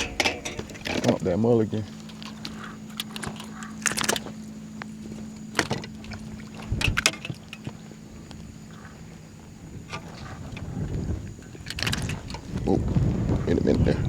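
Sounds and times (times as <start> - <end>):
knocks and clicks of handling: 0.0 - 1.2
steady low hum: 0.0 - 14.0.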